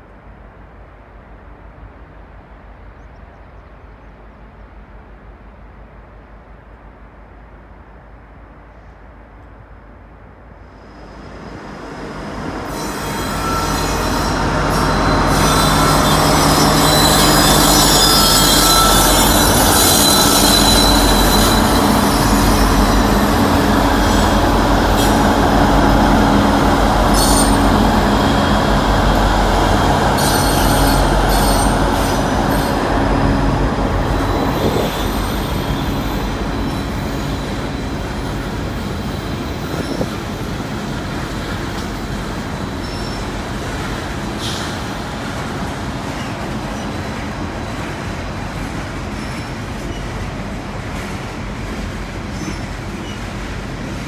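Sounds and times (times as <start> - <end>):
diesel locomotives passing: 0.0 - 54.0
wheels squealing: 12.7 - 32.9.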